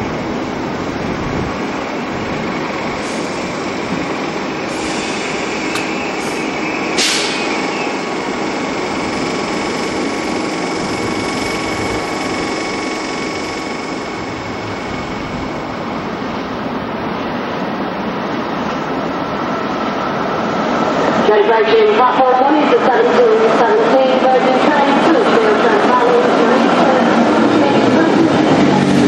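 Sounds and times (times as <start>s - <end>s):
train wheels rumbling on rail: 0.0s - 29.0s
short sharp hiss: 7.0s - 7.5s.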